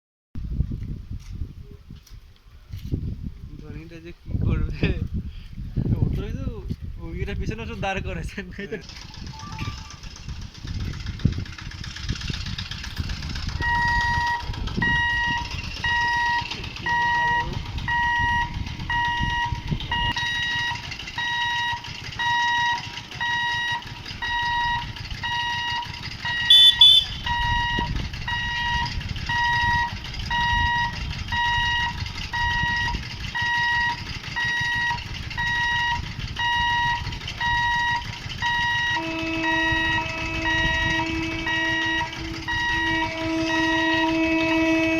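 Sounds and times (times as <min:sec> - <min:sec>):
low engine rumble: 0:00.4 - 0:44.9
loud high-pitched sound: 0:13.6 - 0:30.9
level-crossing alarm beeping: 0:13.6 - 0:44.7.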